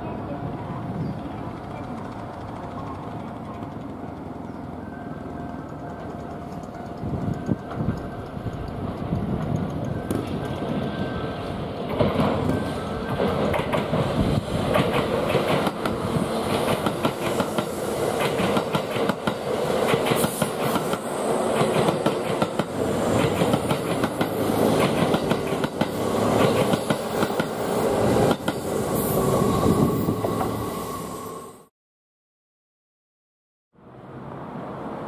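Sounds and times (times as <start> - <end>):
rumble of train cars: 0.0 - 31.7
train wheels clacking on rail joints: 11.9 - 27.6.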